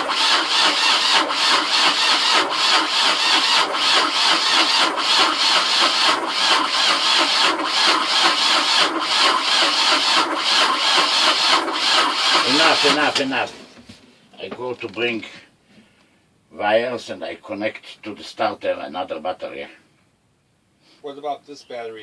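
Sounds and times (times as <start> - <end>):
starter cranking diesel engine: 0.0 - 13.4.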